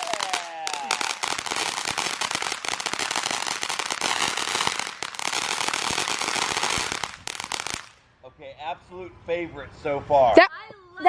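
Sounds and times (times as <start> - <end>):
firework crackling: 0.0 - 8.0.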